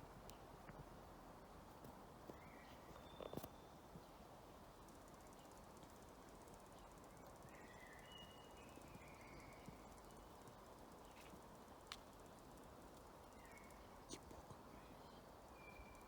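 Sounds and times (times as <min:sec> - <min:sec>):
steady low hiss: 0:00.0 - 0:16.0
faint whistled bird notes: 0:02.4 - 0:03.7, 0:07.4 - 0:10.1, 0:13.3 - 0:16.0.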